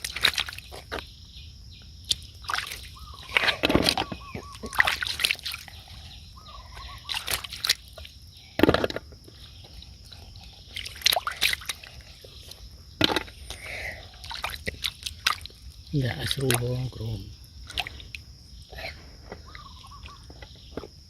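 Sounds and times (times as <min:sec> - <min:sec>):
hands splashing in shallow water: 0:00.0 - 0:00.7, 0:02.1 - 0:05.8, 0:07.0 - 0:08.0, 0:10.8 - 0:11.8.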